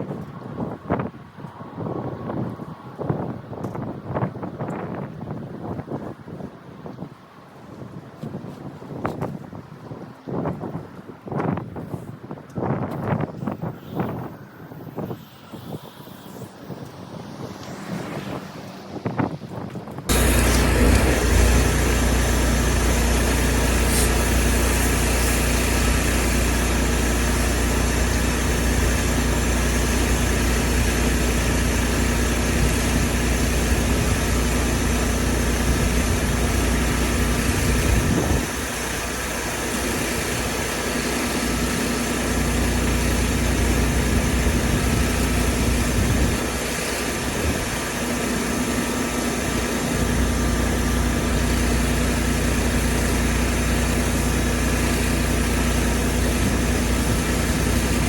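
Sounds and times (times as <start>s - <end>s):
engine humming: 14.0s - 58.0s.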